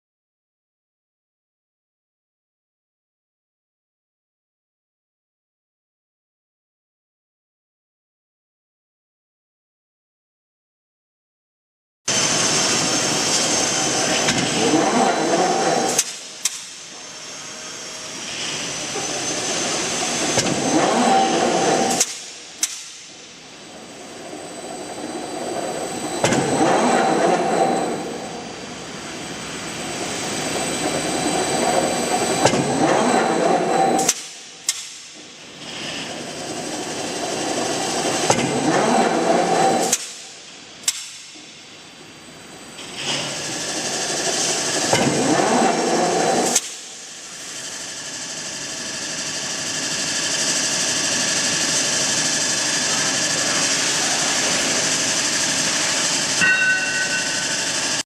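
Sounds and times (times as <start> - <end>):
screw press motor noise: 12.1 - 41.5, 42.8 - 56.4
metal clank: 56.4 - 58.0.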